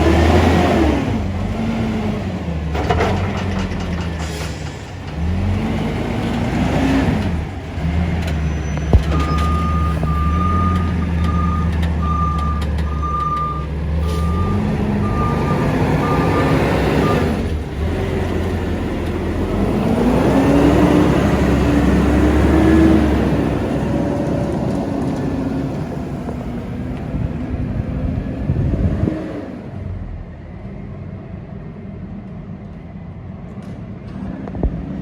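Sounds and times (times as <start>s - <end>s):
truck diesel engine running: 0.0s - 28.7s
back-up alarm beeping: 8.6s - 17.3s.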